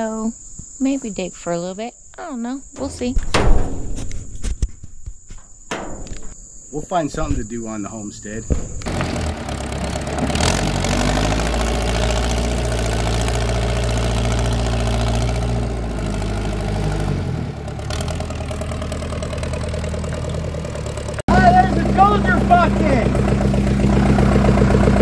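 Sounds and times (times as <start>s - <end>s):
tractor engine running: 2.6s - 25.0s.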